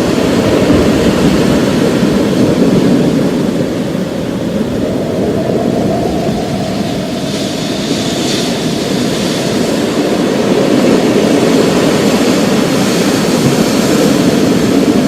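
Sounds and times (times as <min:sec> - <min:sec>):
rain hissing: 0:00.0 - 0:10.6
rolling thunder: 0:00.0 - 0:15.0.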